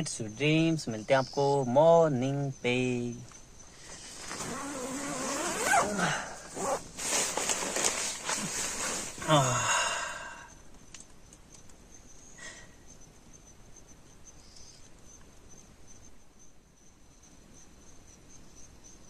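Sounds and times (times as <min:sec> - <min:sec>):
crickets chirping: 0:00.0 - 0:19.0
bedding rustling: 0:03.9 - 0:09.5
person sighing: 0:05.8 - 0:06.5, 0:09.1 - 0:10.5.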